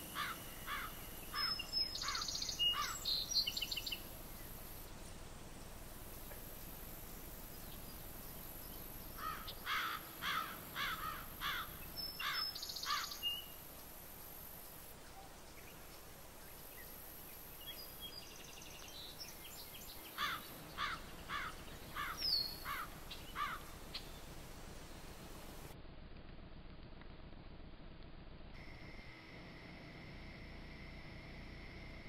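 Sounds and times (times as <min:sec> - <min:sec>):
bird calling: 0:00.0 - 0:04.0, 0:09.2 - 0:13.5, 0:20.1 - 0:25.2
microphone hiss: 0:00.0 - 0:32.0.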